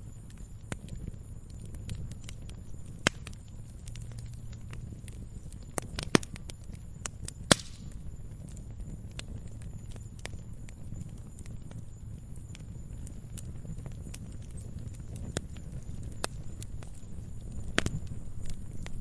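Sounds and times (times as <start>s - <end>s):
campfire wood crackling: 0.0s - 19.0s
low steady fire rumble: 0.0s - 19.0s.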